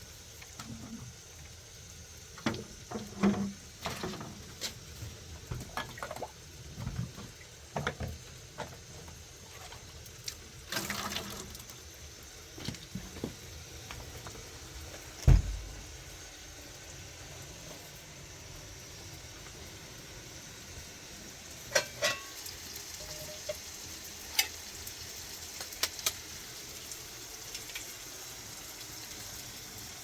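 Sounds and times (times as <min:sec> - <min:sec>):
heavy thump: 0:15.3 - 0:15.8.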